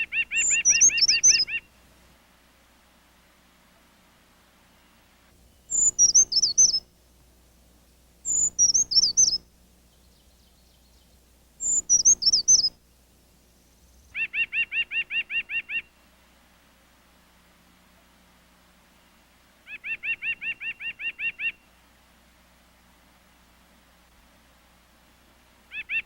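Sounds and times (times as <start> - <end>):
songbirds singing: 0.0 - 1.8, 4.8 - 16.0, 19.7 - 21.7.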